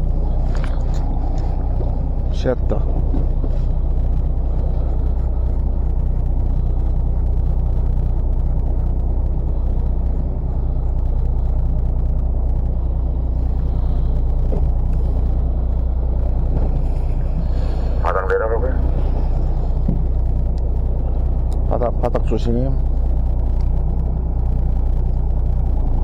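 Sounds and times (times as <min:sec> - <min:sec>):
boat engine running: 0:00.0 - 0:26.0
water and hull noise: 0:00.0 - 0:26.0.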